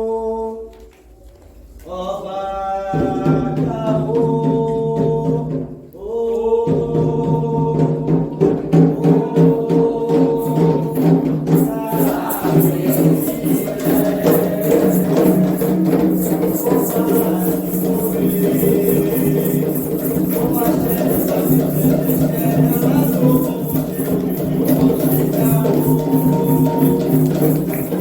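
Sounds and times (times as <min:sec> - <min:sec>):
steady percussion beat: 0:06.6 - 0:28.0
rattling shaker: 0:09.0 - 0:28.0.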